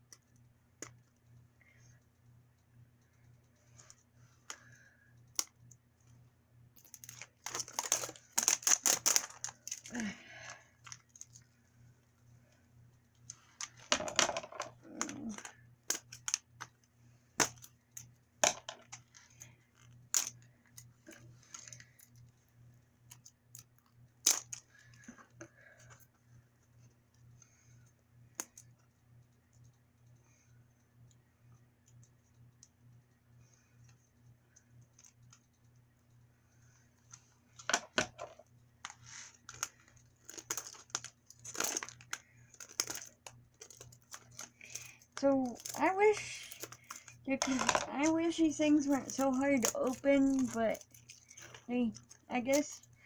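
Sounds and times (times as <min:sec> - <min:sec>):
plastic packaging crinkling: 0:06.8 - 0:11.4, 0:39.1 - 0:52.9.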